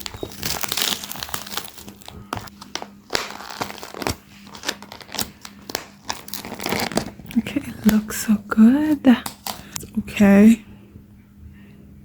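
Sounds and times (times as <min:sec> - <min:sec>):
food packaging crinkling and tearing: 0:00.0 - 0:08.2, 0:09.2 - 0:09.8.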